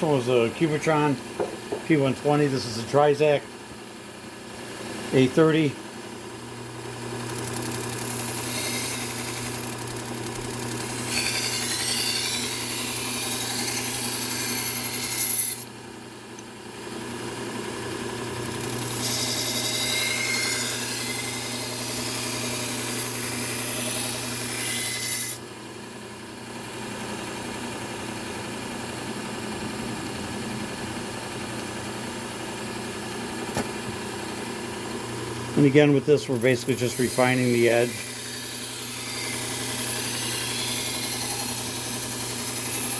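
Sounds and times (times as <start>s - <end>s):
belt sander motor humming: 4.5s - 25.4s, 27.0s - 42.9s
blade abrading on belt: 36.2s - 42.9s.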